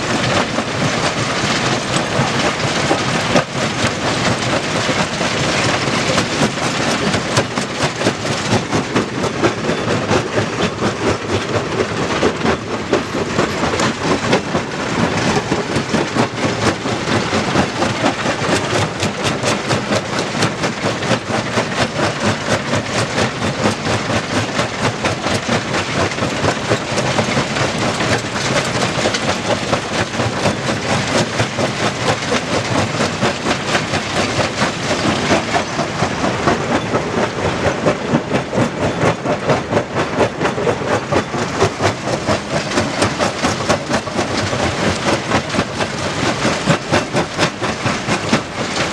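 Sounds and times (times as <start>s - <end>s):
stone crusher clattering: 0.0s - 39.1s.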